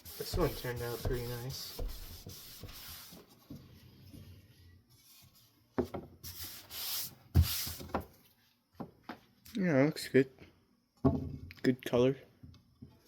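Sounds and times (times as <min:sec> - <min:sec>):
wipe rubbing fan blade: 0:00.0 - 0:03.2.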